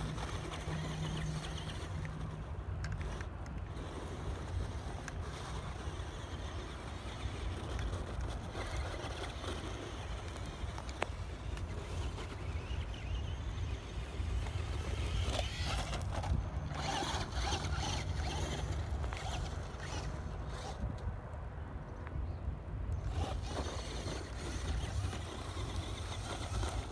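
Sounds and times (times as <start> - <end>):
tyres crunching on gravel: 0.0 - 20.9.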